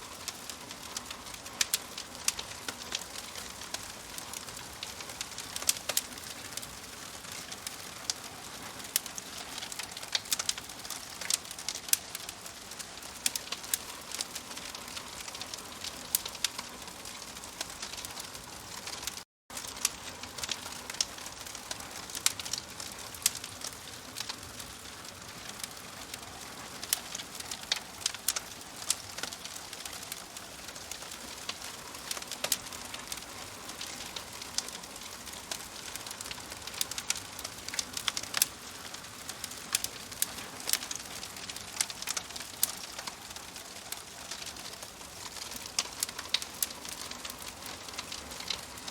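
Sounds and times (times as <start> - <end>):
fire crackling and popping: 0.0 - 48.9.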